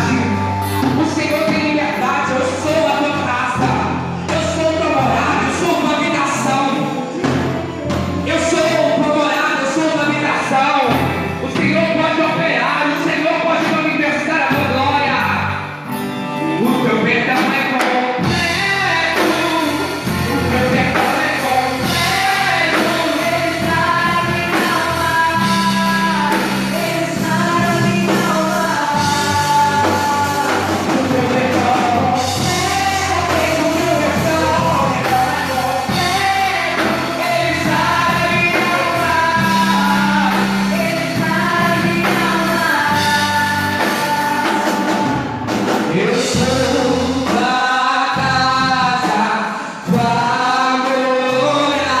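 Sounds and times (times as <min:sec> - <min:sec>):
church band playing: 0:00.0 - 0:52.0
singing: 0:16.7 - 0:52.0.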